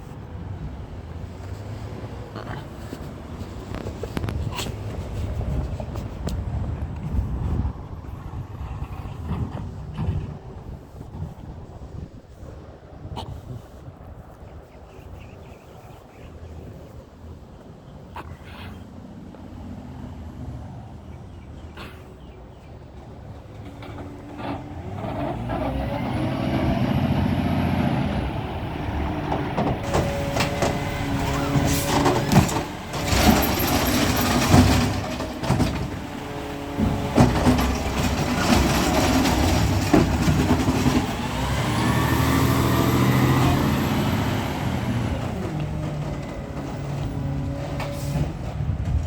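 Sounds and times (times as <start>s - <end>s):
diesel truck engine revving: 23.4s - 49.0s
metal clanks and bangs: 29.3s - 41.3s.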